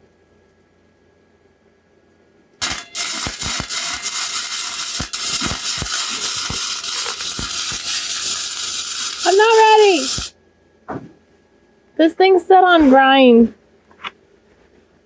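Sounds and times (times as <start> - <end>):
welder arc crackling: 2.6 - 10.3.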